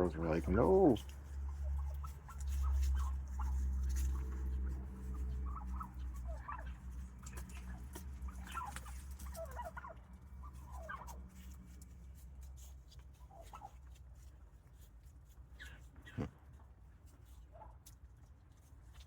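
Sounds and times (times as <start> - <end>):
turkeys calling: 0.0 - 3.6, 5.1 - 11.2.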